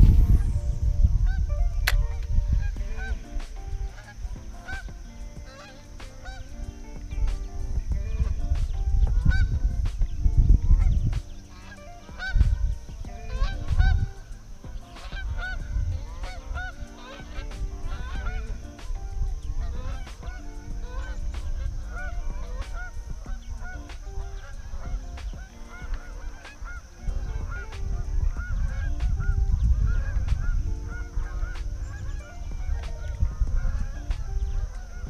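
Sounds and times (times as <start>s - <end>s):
wind rumble on microphone: 0.0s - 35.0s.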